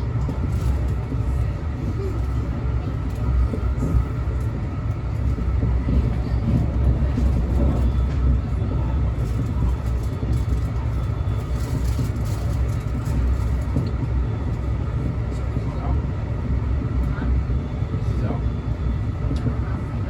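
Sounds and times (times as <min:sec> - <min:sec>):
passenger train rumbling: 0:00.0 - 0:20.0.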